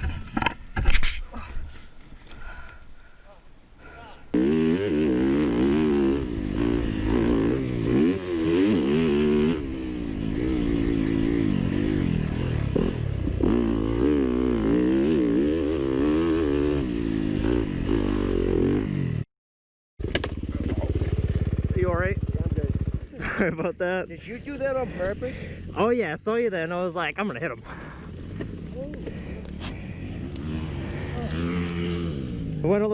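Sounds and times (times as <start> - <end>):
motorcycle engine revving: 4.3 - 19.2, 20.0 - 23.5, 27.6 - 32.9.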